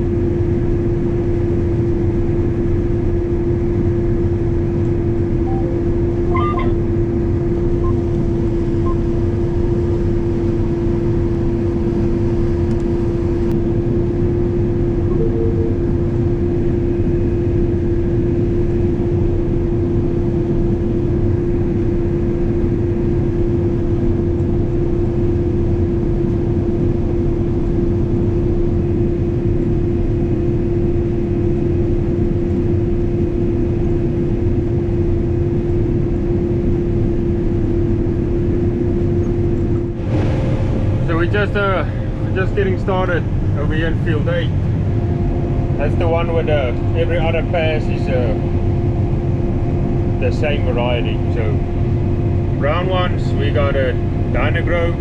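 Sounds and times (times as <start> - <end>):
combine harvester running: 0.0 - 19.4, 36.4 - 55.0.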